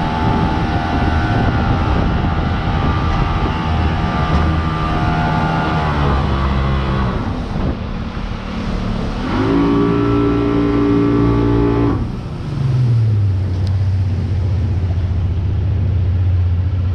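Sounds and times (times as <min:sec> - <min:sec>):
boat engine running: 0:00.0 - 0:16.9.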